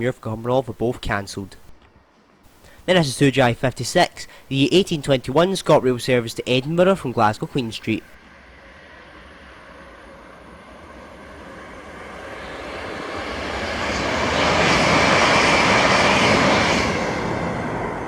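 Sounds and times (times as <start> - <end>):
train passing with rushing noise: 8.2 - 18.0.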